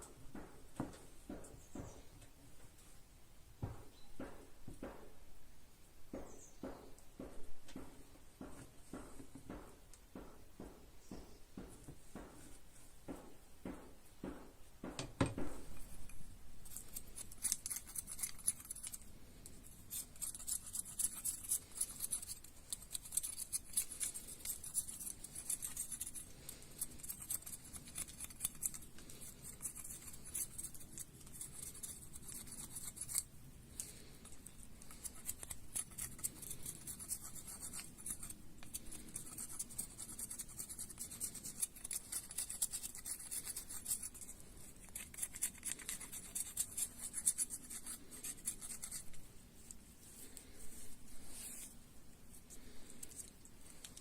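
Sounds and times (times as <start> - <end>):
knocks: 13.1 - 15.7
crisp scratching strokes: 16.7 - 54.0.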